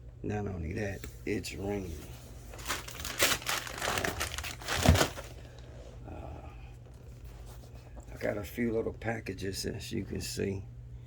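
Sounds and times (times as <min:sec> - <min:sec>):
package wrapping crinkling: 0:02.5 - 0:05.8.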